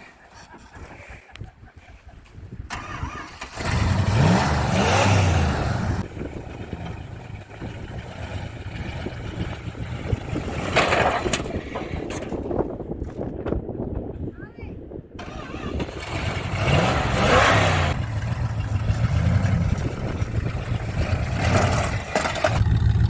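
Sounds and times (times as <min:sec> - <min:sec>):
truck engine revving: 0:02.7 - 0:11.6, 0:15.2 - 0:23.0.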